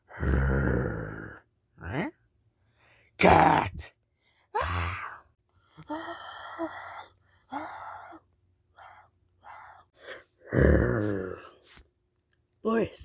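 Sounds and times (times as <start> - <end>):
person breathy vocal sounds: 0.0 - 1.4, 4.5 - 11.6.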